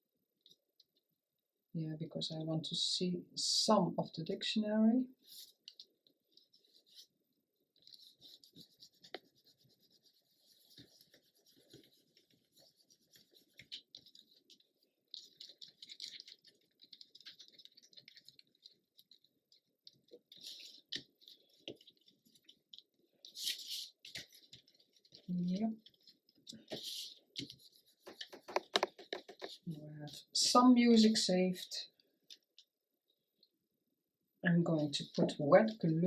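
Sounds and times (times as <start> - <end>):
paper rustling and scratching: 5.2 - 32.7.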